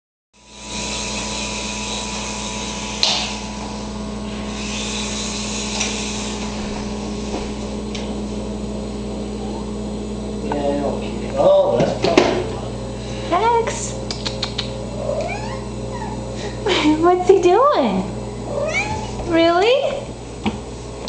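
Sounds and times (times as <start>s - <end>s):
toy helicopter rotors whirring: 4.6s - 6.1s.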